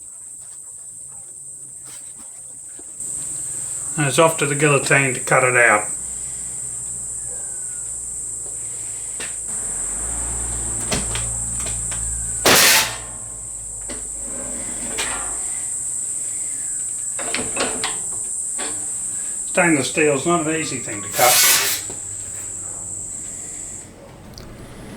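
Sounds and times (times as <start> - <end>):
crickets chirring: 0.0 - 24.9
metal shearing crunch: 9.3 - 22.5
metal knocks and clanks: 10.8 - 15.8.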